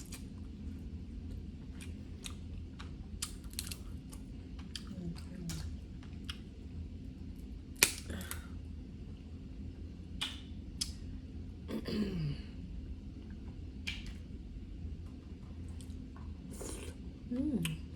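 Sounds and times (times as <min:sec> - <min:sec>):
crab shells cracking and crunching: 0:01.8 - 0:06.5, 0:07.8 - 0:08.5.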